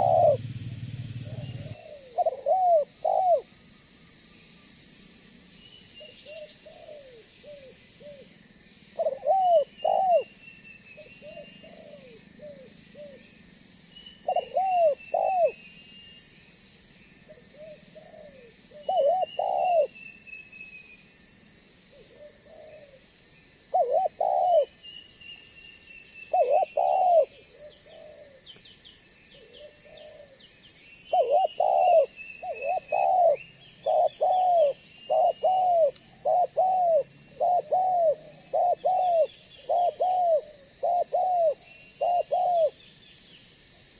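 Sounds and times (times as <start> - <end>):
dove cooing: 0.0 - 3.5, 6.3 - 8.2, 9.0 - 10.3, 11.2 - 13.2, 14.2 - 15.6, 17.3 - 19.9, 22.0 - 23.0, 23.7 - 24.8, 26.3 - 28.5, 29.3 - 30.4, 31.1 - 42.8.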